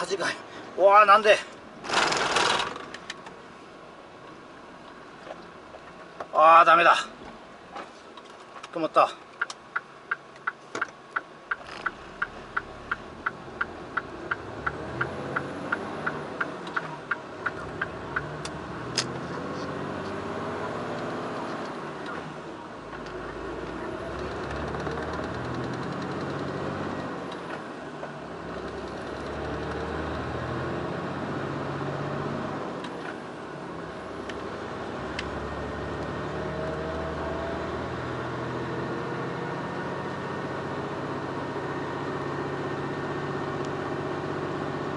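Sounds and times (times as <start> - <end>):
turn-signal relay ticking: 9.4 - 18.3
truck diesel engine pulling away: 17.5 - 27.4, 28.3 - 32.8.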